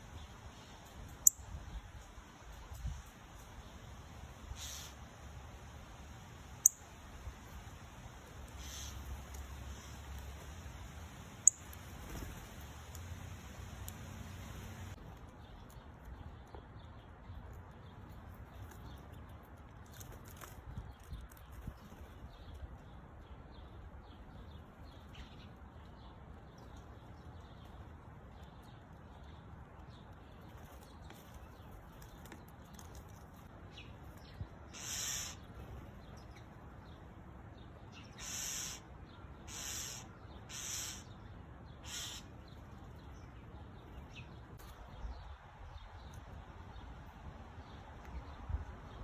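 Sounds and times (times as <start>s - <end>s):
bird giving harsh calls: 4.6s - 5.0s, 8.6s - 9.1s, 34.7s - 35.4s, 38.1s - 41.1s, 41.8s - 42.3s.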